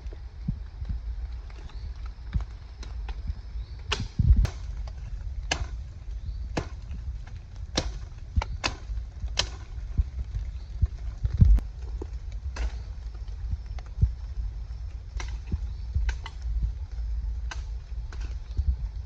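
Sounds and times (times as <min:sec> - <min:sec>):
low rumble: 0:00.0 - 0:19.0
blade chopping wood: 0:03.9 - 0:05.8, 0:06.5 - 0:10.0.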